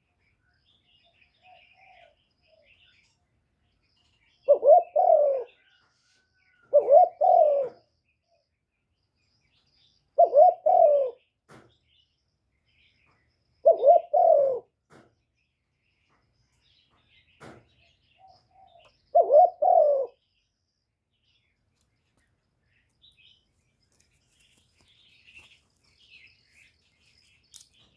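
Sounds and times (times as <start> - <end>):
small birds chirping: 0.0 - 27.9
dove cooing: 1.4 - 2.7, 4.4 - 5.8, 6.6 - 7.9, 10.2 - 11.2, 13.6 - 14.8, 18.2 - 20.2.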